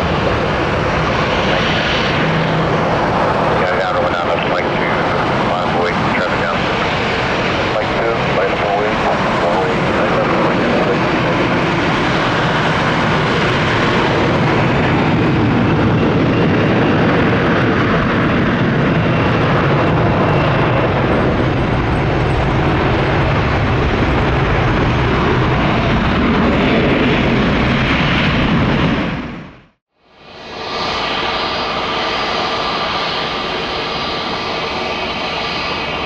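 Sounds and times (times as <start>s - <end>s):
jet engines at takeoff: 0.0s - 36.0s.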